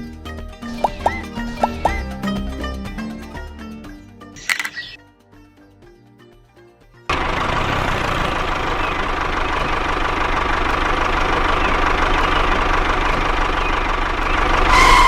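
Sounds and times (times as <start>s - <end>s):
motor running steadily: 7.1s - 15.0s.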